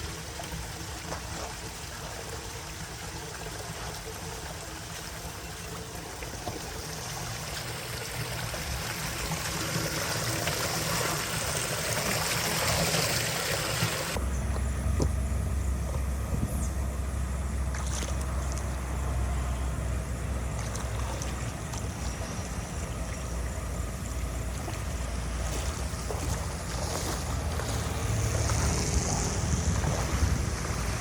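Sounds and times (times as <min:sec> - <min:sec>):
water running: 0:00.2 - 0:14.2
steady low rumble: 0:14.1 - 0:31.0.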